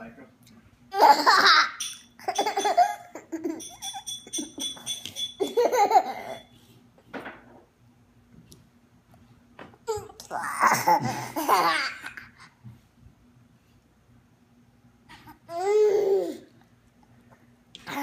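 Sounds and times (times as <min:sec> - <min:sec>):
toddler laughing: 0:00.9 - 0:04.0, 0:05.4 - 0:06.5, 0:09.9 - 0:12.4, 0:15.2 - 0:16.5.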